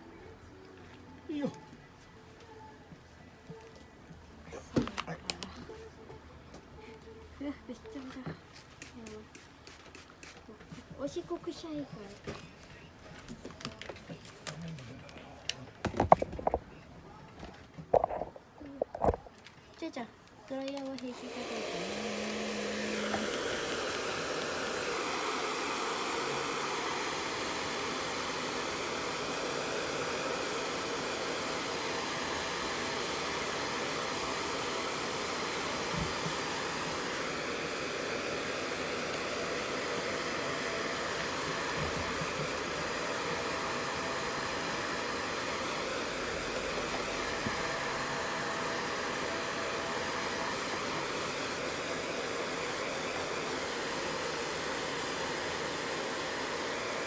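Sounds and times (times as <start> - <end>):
hair dryer blowing: 20.9 - 57.0.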